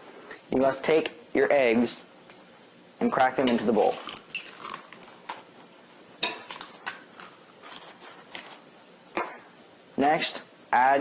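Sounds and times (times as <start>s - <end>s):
eggs cracking on a bowl: 3.2s - 5.5s, 6.2s - 7.4s.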